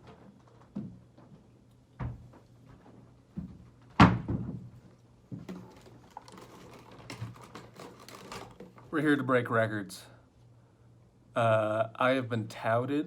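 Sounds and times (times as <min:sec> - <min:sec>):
thumps and knocks: 0:00.0 - 0:06.5
faint steady hum: 0:00.0 - 0:13.0.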